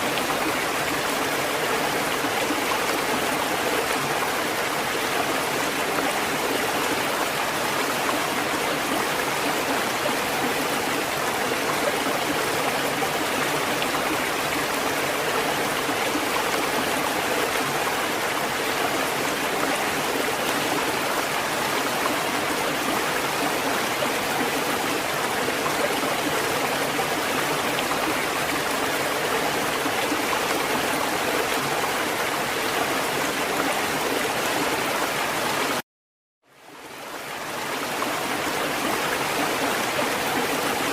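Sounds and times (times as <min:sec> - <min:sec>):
rushing water: 0:00.0 - 0:35.8, 0:36.5 - 0:40.9.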